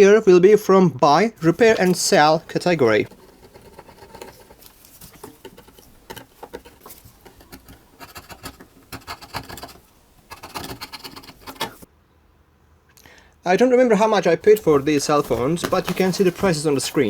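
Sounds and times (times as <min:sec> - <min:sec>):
metal tool scraping adhesive: 0:01.4 - 0:11.9.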